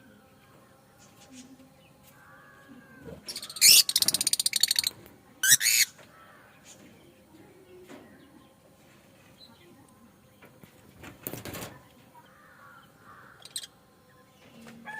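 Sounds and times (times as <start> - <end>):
lovebirds chirping and shrieking: 1.0 - 6.9, 12.2 - 14.9
fast rattling bird chatter: 3.2 - 6.8, 11.0 - 13.7.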